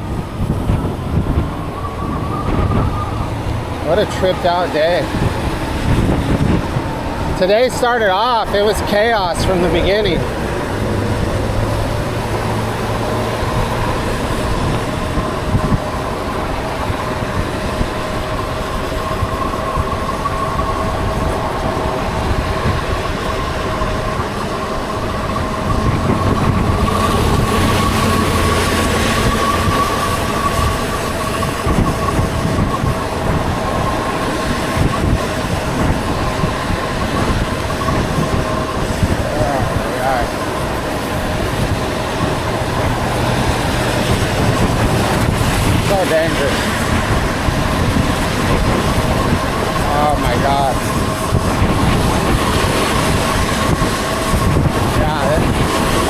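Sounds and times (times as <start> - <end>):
road noise on wet streets: 0.0 - 56.0
whining tones: 0.0 - 56.0
wind rush: 0.0 - 56.0.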